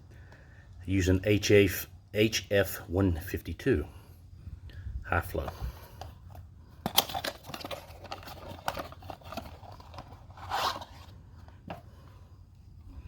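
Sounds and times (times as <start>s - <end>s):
packaging tearing and crinkling: 6.9s - 11.1s.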